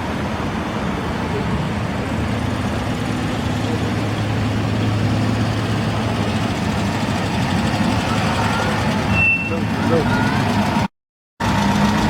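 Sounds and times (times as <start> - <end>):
vehicle engine idling: 0.5 - 12.0.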